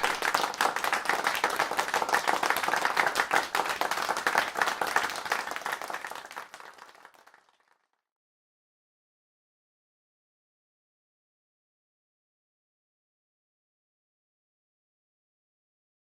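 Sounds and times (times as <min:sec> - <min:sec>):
hands clapping: 0:00.0 - 0:08.0.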